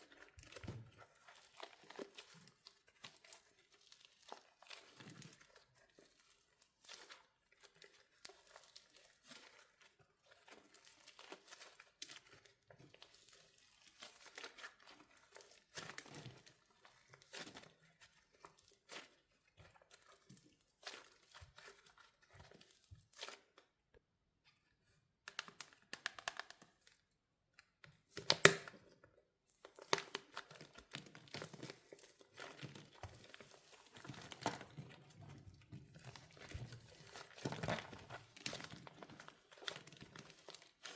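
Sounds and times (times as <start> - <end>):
wax shell cracking and crinkling: 25.2 - 40.9.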